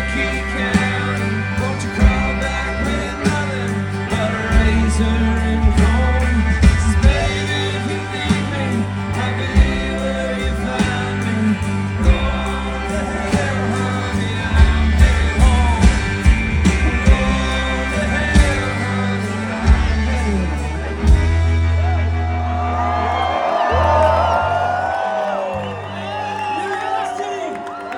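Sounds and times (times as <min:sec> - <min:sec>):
steady drum beat: 0:00.0 - 0:21.7
sung vocals: 0:00.0 - 0:27.5
country band playing live: 0:00.0 - 0:27.9.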